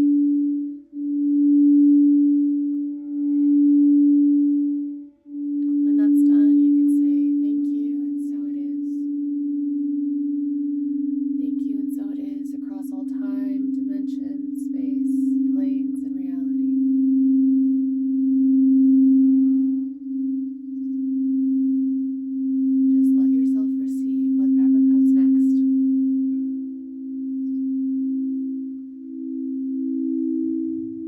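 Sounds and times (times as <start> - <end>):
higher singing bowl tone: 0.0 - 31.0
singing bowl low tone: 0.0 - 31.0.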